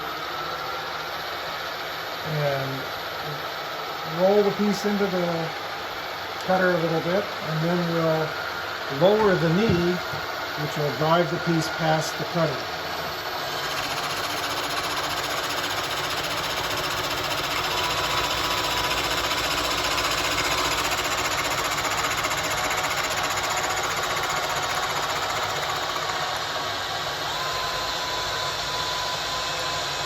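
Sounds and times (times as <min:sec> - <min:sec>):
drill motor: 0:06.4 - 0:30.0
milling machine cutting: 0:08.9 - 0:29.3.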